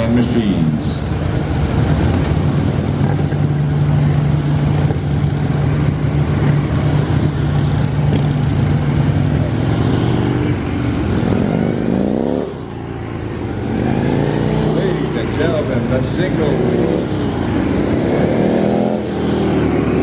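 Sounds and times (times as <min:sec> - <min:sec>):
motorcycle engines at low speed: 0:00.0 - 0:20.0
motorcycles passing close: 0:00.0 - 0:20.0.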